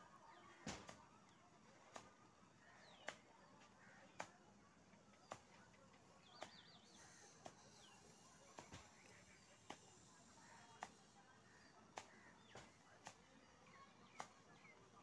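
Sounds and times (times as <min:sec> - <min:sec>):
faint sharp clicks: 0:03.0 - 0:03.3.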